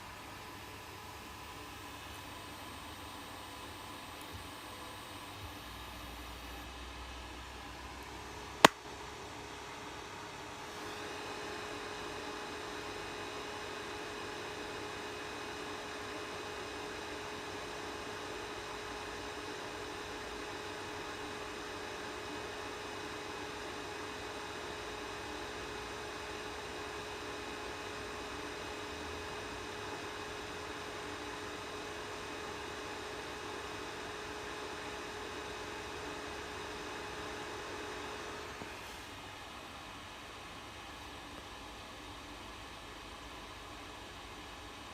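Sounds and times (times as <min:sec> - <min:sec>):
printer electric hum and whine: 0:00.0 - 0:08.5, 0:09.3 - 0:44.9
resin printer humming and whining: 0:24.8 - 0:39.2.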